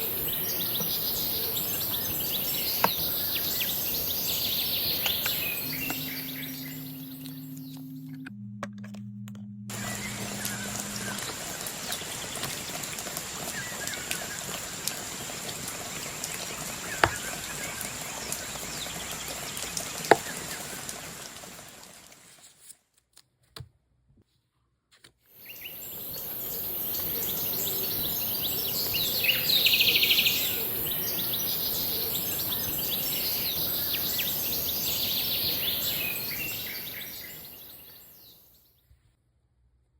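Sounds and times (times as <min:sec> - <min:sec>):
birds chirping: 0:00.0 - 0:08.4, 0:09.0 - 0:14.5, 0:25.4 - 0:38.4.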